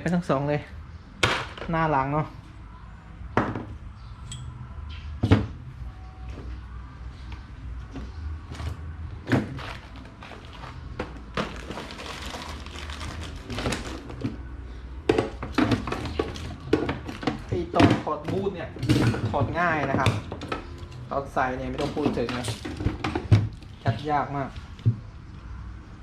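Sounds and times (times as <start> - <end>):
metal parts and tools clicking: 4.2 - 4.6.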